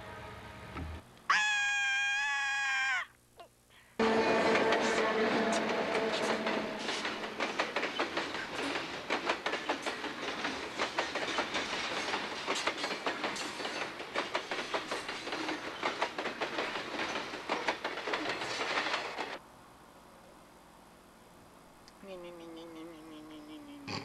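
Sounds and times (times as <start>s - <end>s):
train rolling rumble: 4.0s - 19.4s
train wheels clattering over joints: 4.0s - 19.4s.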